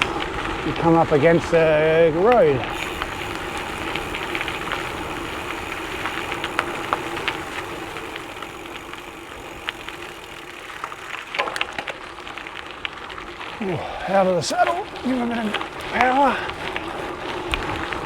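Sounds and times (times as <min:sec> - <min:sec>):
bike tyres rolling on gravel: 0:00.0 - 0:18.0
gravel crunching clicks: 0:00.0 - 0:18.0.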